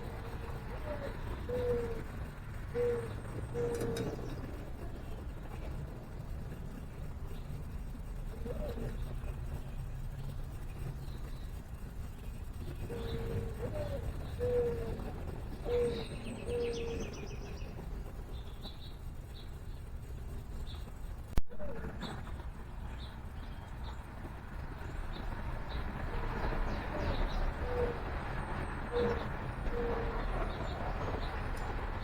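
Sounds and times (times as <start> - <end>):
dove cooing: 0.0 - 5.0, 8.3 - 9.3, 12.8 - 17.3, 27.0 - 30.7
small birds chirping: 0.0 - 32.0.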